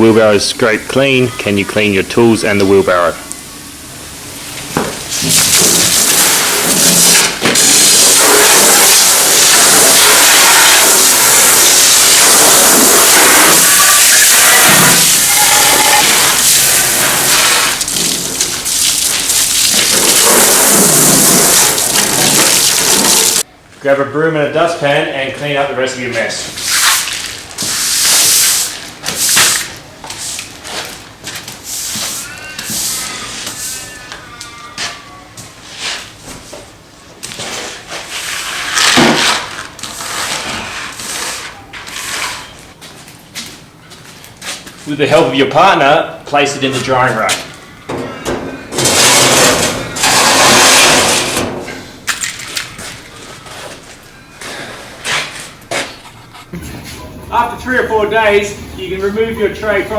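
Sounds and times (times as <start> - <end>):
water spraying hard: 5.1 - 23.4
broom sweeping: 26.4 - 33.9, 35.6 - 36.2, 37.4 - 38.8, 39.8 - 42.5.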